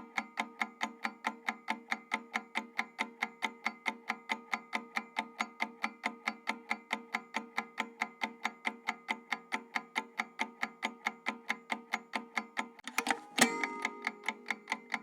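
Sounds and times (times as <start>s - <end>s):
clock-like ticking timer: 12.9s - 15.0s
steady held tone: 12.9s - 15.0s.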